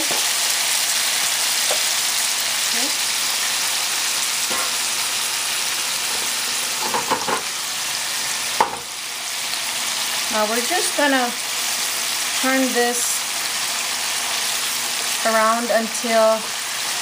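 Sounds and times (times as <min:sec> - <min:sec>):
chicken sizzling in hot oil: 0:00.0 - 0:17.0
pan knocking on burner: 0:06.1 - 0:07.5, 0:08.6 - 0:08.9.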